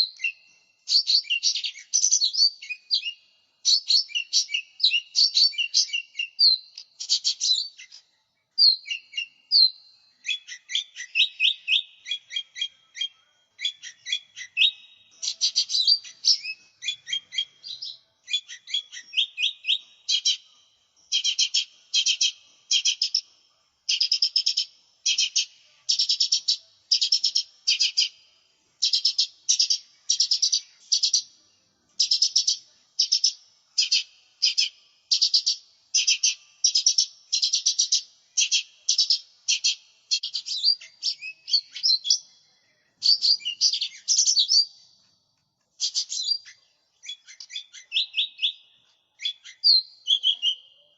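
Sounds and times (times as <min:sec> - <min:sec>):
bird rapid high chirping: 0:00.0 - 0:08.0, 0:08.6 - 0:23.3, 0:23.9 - 0:28.2, 0:28.8 - 0:31.3, 0:32.0 - 0:42.4, 0:43.0 - 0:44.8, 0:45.8 - 0:50.9.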